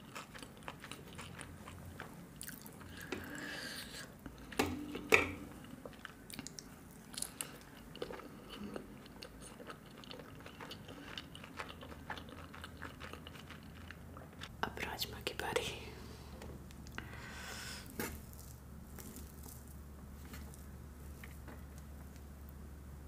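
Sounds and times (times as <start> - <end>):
person chewing food: 0.0 - 14.5.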